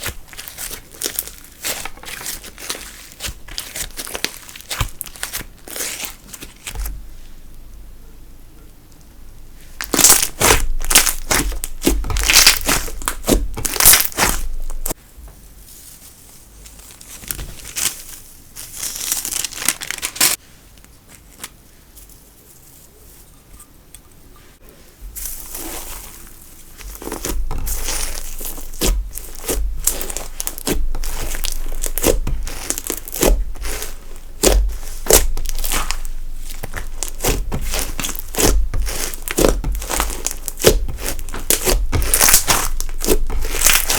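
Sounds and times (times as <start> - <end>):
slime crackling and popping: 0.0 - 6.9, 9.8 - 15.0, 26.7 - 43.9.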